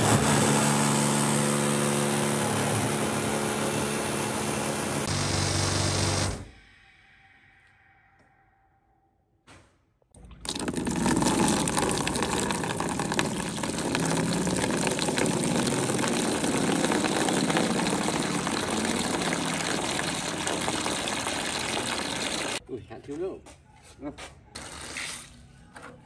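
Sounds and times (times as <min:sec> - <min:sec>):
water pouring and churning: 0:10.2 - 0:22.6.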